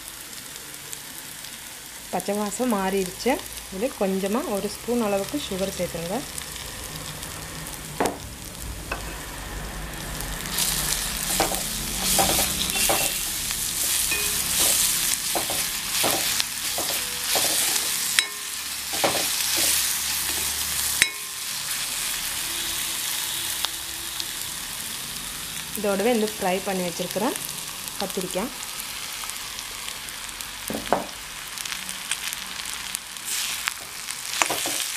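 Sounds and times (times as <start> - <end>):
spices sizzling in oil: 0.0 - 34.9
steel spoon scraping pan: 10.5 - 21.9
metal clinks: 14.1 - 14.8.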